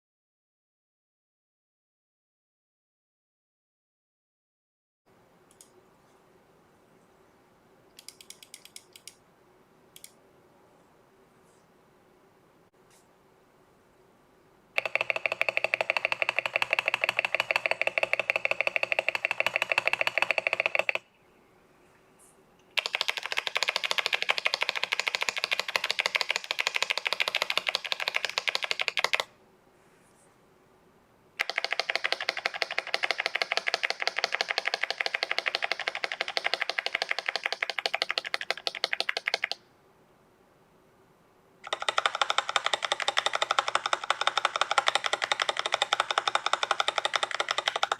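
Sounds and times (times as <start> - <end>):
mechanical keyboard keys clicking: 14.8 - 21.0, 22.8 - 29.3, 31.4 - 39.6, 41.6 - 47.9.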